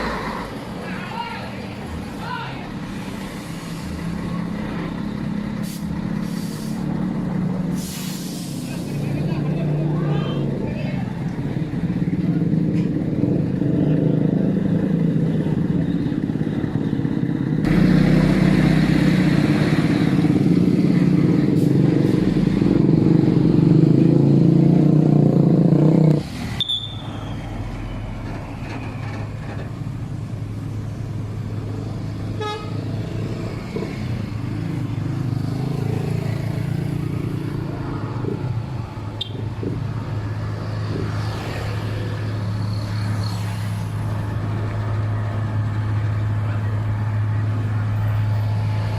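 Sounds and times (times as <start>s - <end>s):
traffic: 0.0s - 48.9s
truck diesel engine labouring: 0.0s - 48.9s
vehicle horn toot: 32.4s - 32.8s.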